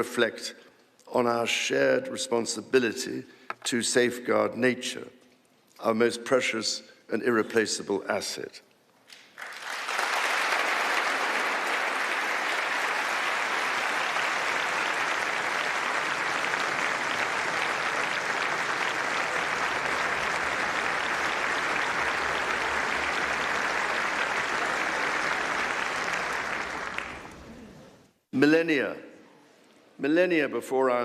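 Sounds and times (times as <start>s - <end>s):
audience clapping: 9.1s - 27.8s.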